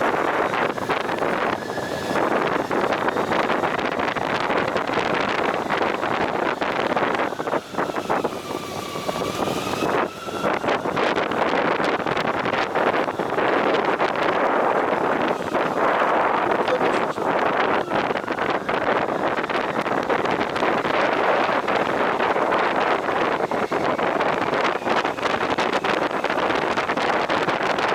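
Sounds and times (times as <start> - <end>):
motorcycle running: 0.0 - 27.9
wind rushing over microphone: 0.0 - 27.9.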